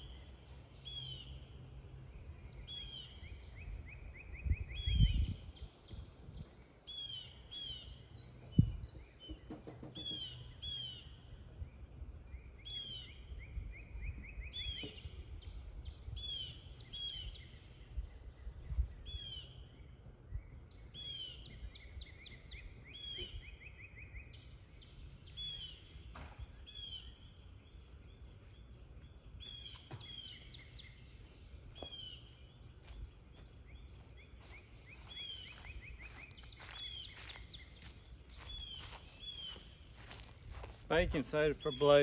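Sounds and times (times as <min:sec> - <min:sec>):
songbirds calling: 0:00.0 - 0:42.0
low wind-like rumble: 0:03.4 - 0:06.7, 0:13.2 - 0:20.8.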